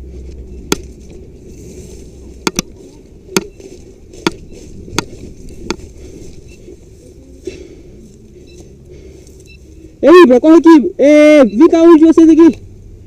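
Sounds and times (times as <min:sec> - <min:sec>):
steady low rumble: 0:00.0 - 0:11.0
sharp clicks or knocks: 0:02.4 - 0:03.6.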